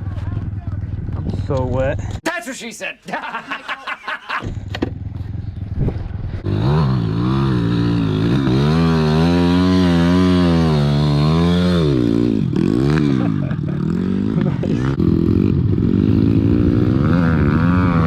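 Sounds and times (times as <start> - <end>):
motorbike engine revving: 4.4 - 18.0.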